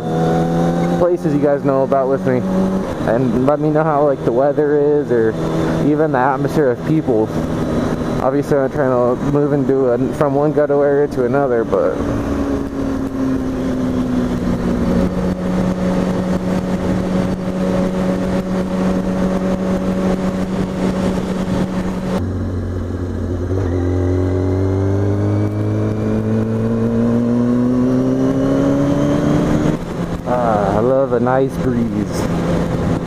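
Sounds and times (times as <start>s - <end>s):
motorcycle engine accelerating: 0.0s - 33.0s
wind rushing: 11.7s - 30.6s.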